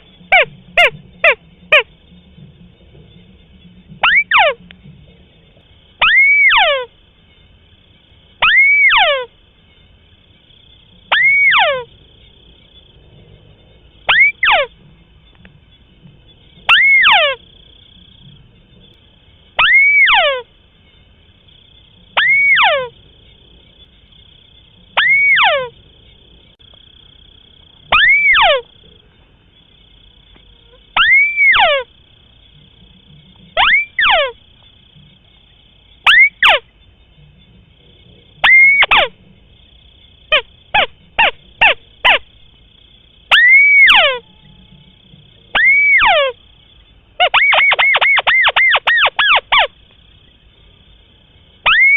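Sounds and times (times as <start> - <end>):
crake calling: 0.0 - 50.6, 51.5 - 51.9.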